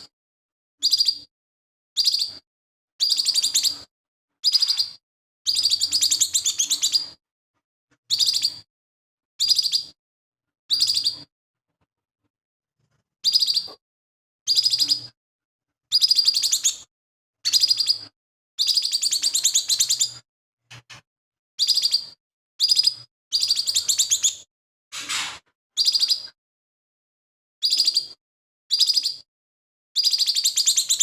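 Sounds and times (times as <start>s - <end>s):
bird singing rapid chattering: 0.8s - 1.3s, 2.0s - 2.4s, 3.0s - 7.2s, 8.1s - 8.7s, 9.4s - 10.0s, 10.7s - 11.3s, 13.2s - 13.8s, 14.5s - 15.2s, 15.9s - 20.2s, 21.6s - 24.5s, 25.8s - 26.4s, 27.6s - 29.3s, 30.0s - 31.0s.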